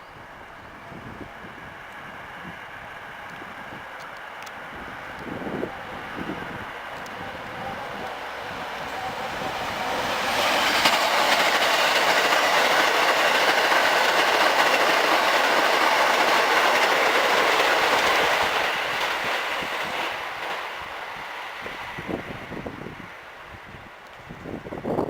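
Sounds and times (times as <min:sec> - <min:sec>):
train wheels clattering on rails: 0:03.2 - 0:22.6.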